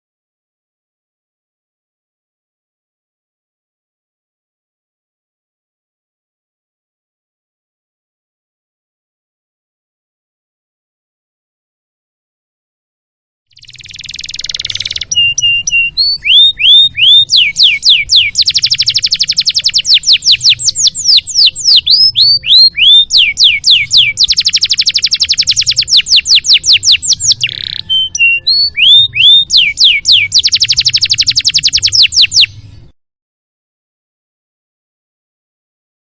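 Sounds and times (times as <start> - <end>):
canary singing: 13.5 - 32.9.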